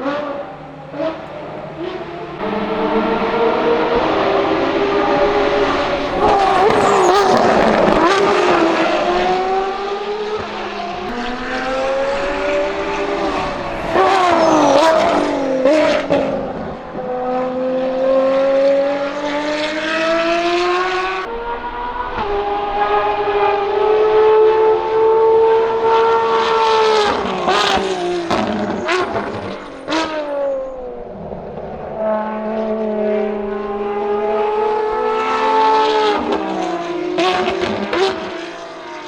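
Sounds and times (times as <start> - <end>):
race car engine revving: 0.0 - 30.1.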